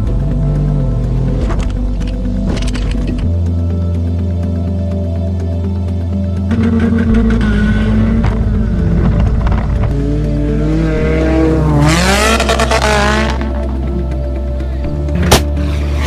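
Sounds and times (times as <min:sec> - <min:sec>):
background music with bass: 0:00.0 - 0:16.0
car engine revving: 0:06.4 - 0:14.4.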